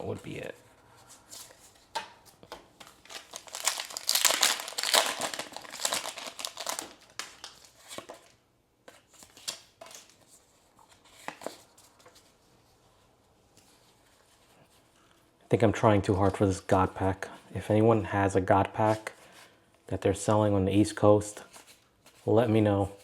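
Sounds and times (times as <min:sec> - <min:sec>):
foil wrapper crinkling and tearing: 0:03.0 - 0:07.9.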